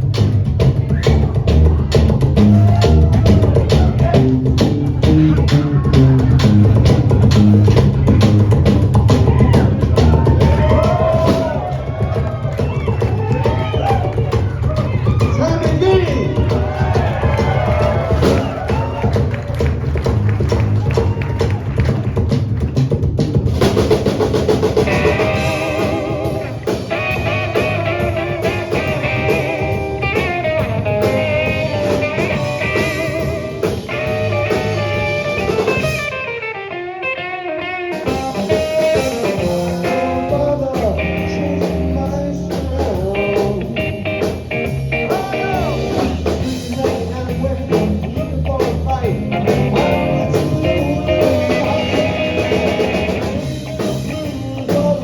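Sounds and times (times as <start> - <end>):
bass guitar: 0.0 - 55.0
drums: 0.0 - 55.0
electric guitar lines: 24.8 - 47.2, 49.0 - 55.0.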